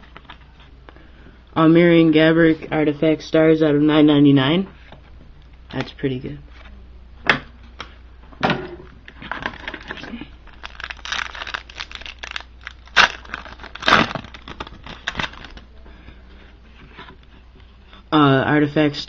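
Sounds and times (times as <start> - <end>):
card wrapper crinkling: 9.3 - 15.7.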